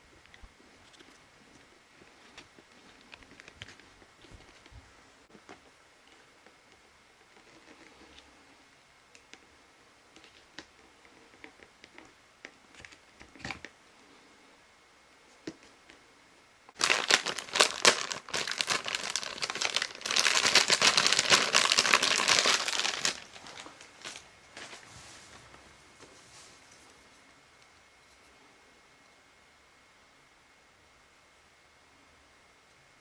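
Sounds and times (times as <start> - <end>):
crinkling and rustling: 0.0 - 5.0, 16.8 - 27.2.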